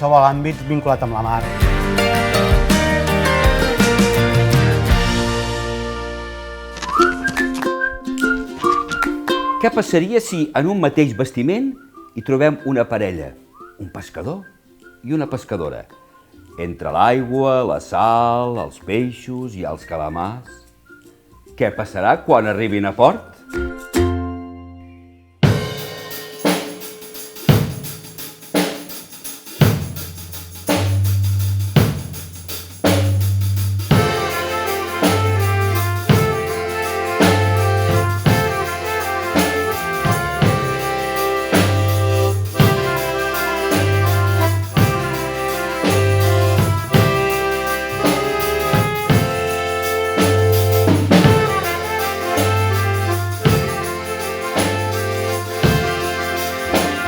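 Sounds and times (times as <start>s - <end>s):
bass line: 0.0s - 8.1s, 32.8s - 57.0s
background music groove: 0.0s - 57.0s
drum beat: 1.0s - 5.6s, 25.4s - 57.0s.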